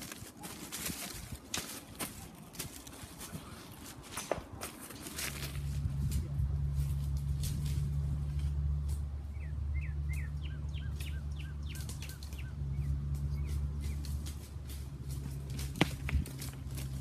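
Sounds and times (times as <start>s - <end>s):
footsteps on gravel: 0.0s - 8.3s, 13.2s - 17.0s
steady low hum: 1.0s - 17.0s
songbird chirping: 8.4s - 15.5s.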